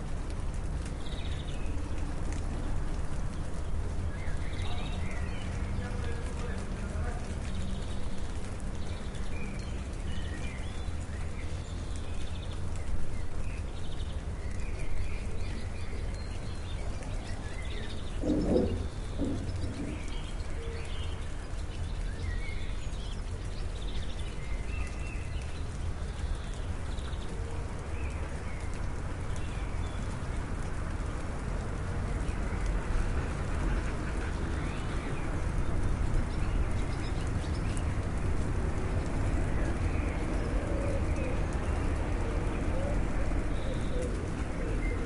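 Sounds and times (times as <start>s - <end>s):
small birds chirping: 0.1s - 2.4s, 3.2s - 30.4s, 34.3s - 45.0s
steady rushing noise: 18.2s - 20.5s.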